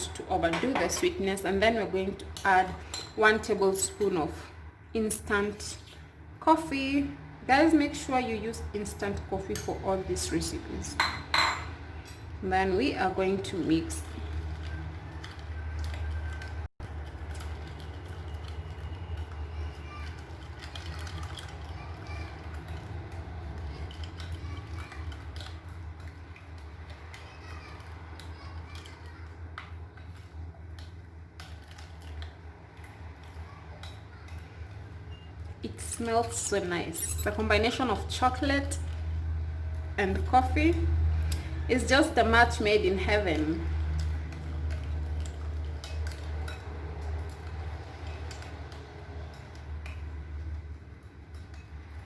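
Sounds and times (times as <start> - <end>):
spoon clinking against container: 37.0 - 37.5.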